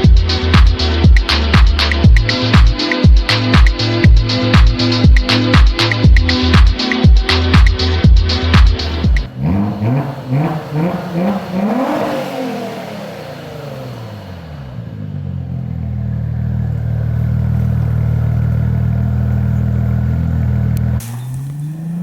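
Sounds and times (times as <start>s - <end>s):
car engine revving: 8.4s - 22.0s.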